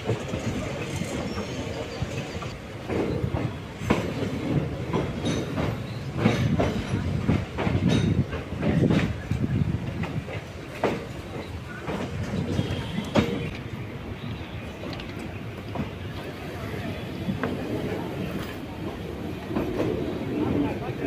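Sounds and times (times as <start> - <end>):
wheel clatter over rail joints: 0.0 - 13.8
train coaches rumbling: 0.0 - 21.0.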